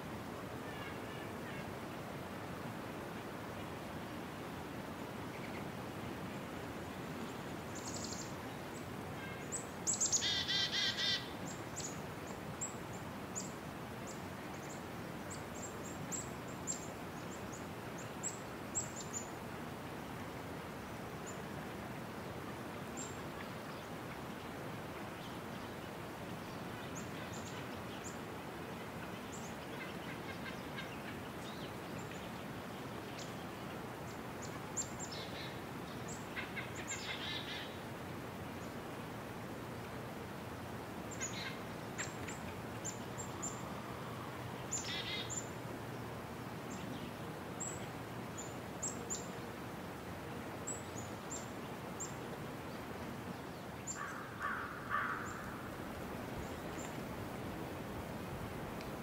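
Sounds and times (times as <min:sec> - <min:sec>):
steady background noise: 0:00.0 - 0:59.0
wavering bird call: 0:09.2 - 0:11.4.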